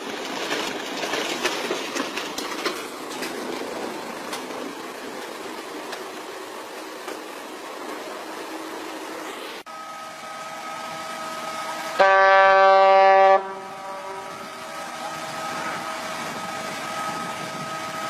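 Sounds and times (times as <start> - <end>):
loud horn blast: 11.9 - 14.5.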